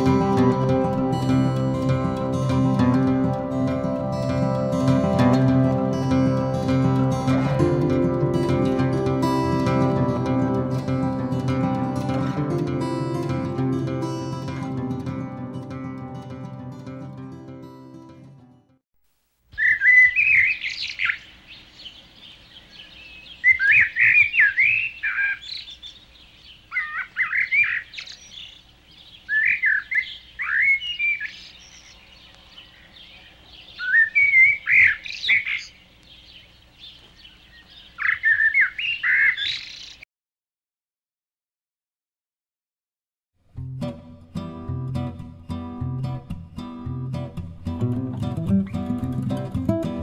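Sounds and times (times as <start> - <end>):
songbird warbling: 19.5 - 40.0.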